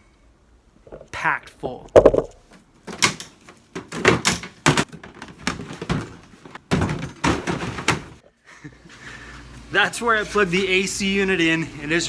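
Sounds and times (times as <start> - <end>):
gear rummaged in plastic bin: 2.9 - 8.2.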